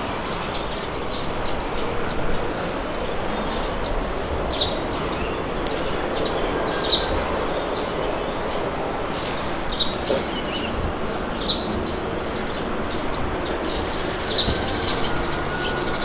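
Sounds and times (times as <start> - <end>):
wind blowing: 0.0 - 16.0
bird chirping: 3.2 - 16.0.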